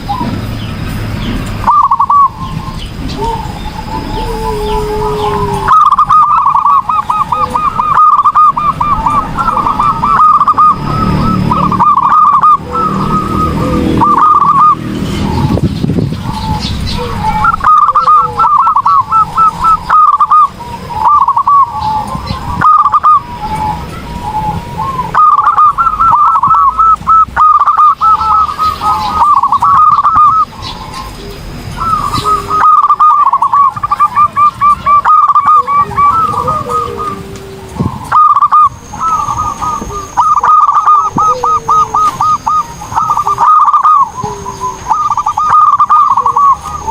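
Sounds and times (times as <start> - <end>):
dove cooing: 1.6 - 46.9.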